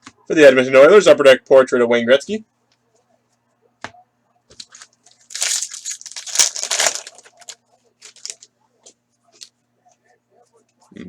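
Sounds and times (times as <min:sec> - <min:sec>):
foil wrapper crinkling: 0:04.6 - 0:08.5.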